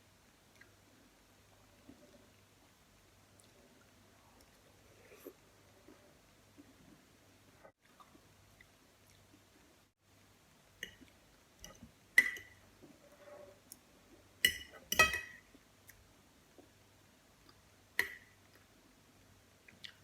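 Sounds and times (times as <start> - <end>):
cutlery clinking on plate: 14.4 - 15.4.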